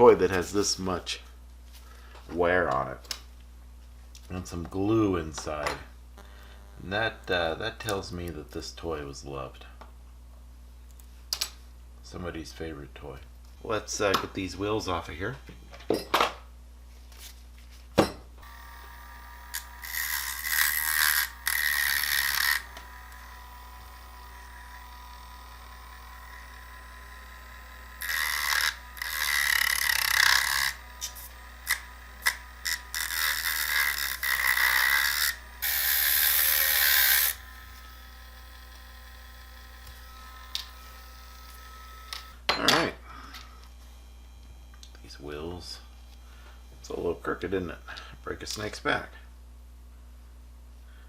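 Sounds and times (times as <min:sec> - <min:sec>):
small power tool running: 0:06.2 - 0:07.8, 0:18.4 - 0:42.4.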